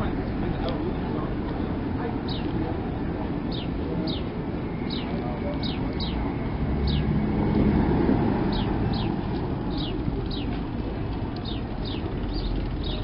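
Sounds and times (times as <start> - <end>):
low rumble of street traffic: 0.0 - 13.0
small bird chirping: 8.5 - 10.6, 11.4 - 13.0.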